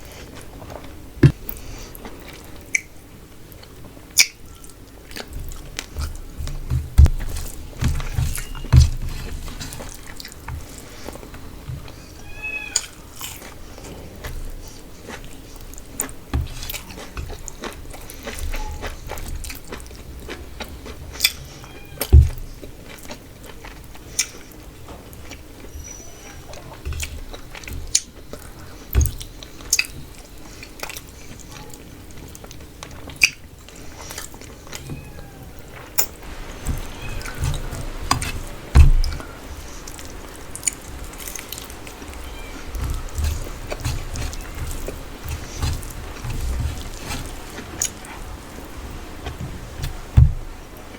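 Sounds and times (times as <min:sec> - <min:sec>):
wet chewing and smacking: 0:00.1 - 0:34.8, 0:35.6 - 0:50.9
dull thumps: 0:01.2 - 0:01.4, 0:05.3 - 0:12.0, 0:16.2 - 0:17.5, 0:22.1 - 0:22.6, 0:36.2 - 0:50.9.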